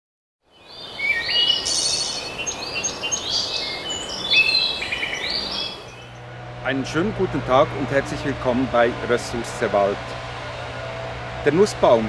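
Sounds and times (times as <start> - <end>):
birds singing: 0.5 - 6.2.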